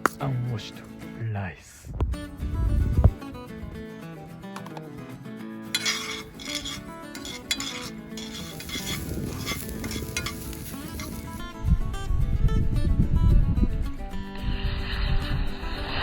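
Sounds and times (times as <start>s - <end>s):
utensil scraping rice in skillet: 5.7s - 11.4s
rice sizzling in hot oil: 5.7s - 11.5s.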